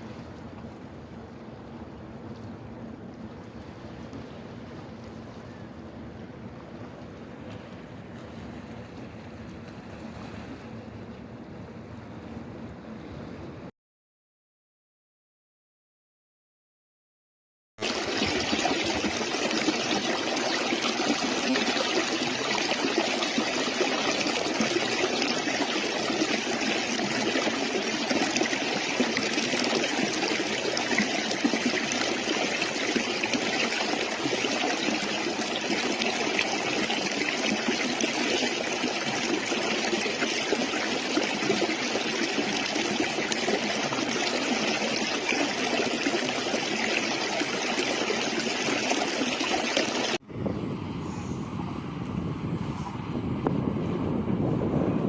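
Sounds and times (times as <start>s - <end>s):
stream water rushing: 17.8s - 50.2s.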